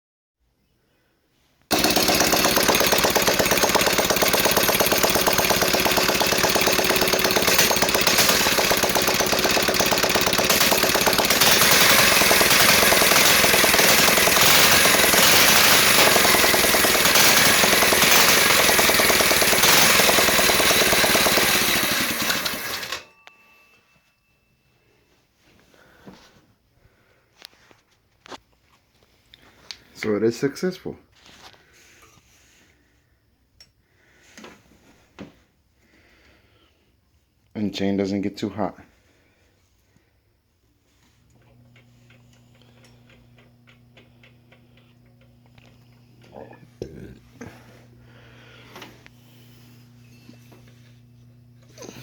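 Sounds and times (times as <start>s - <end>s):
small engine running loud: 1.7s - 23.1s, 49.1s - 52.0s.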